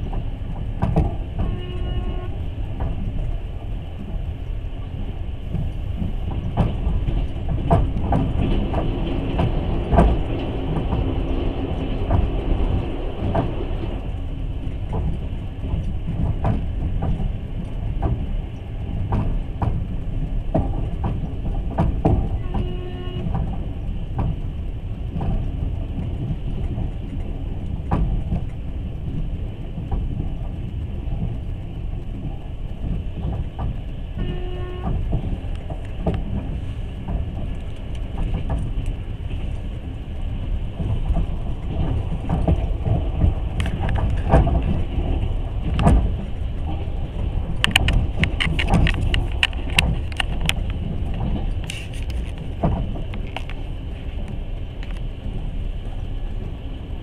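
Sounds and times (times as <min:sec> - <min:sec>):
train wheels rumbling: 0:00.0 - 0:57.0
wheel knocks over rail joints: 0:05.5 - 0:14.0.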